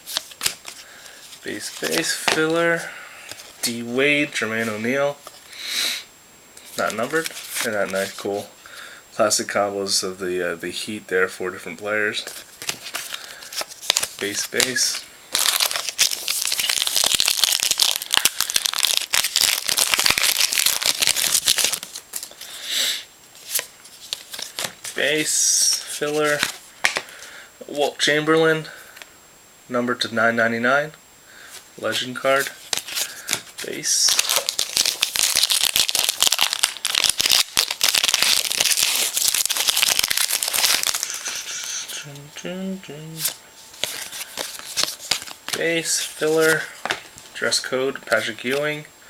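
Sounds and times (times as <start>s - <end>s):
foil wrapper tearing and crinkling: 12.6s - 22.5s, 32.4s - 41.8s, 43.2s - 47.0s.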